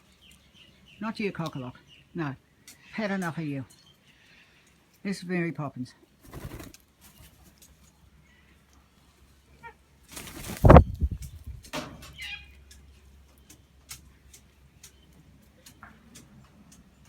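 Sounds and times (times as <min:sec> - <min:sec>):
bird wings flapping: 0:06.2 - 0:07.6, 0:10.1 - 0:11.7.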